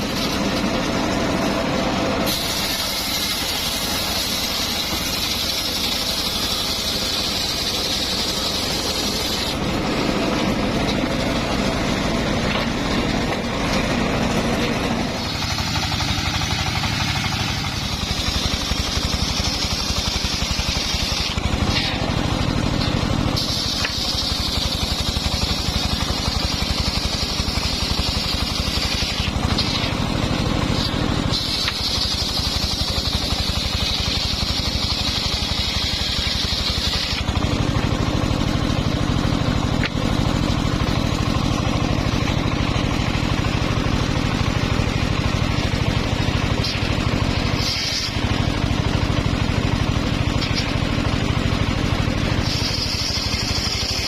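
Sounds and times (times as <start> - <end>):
saw blade cutting timber: 0.0 - 54.0
saw engine running: 0.0 - 54.0.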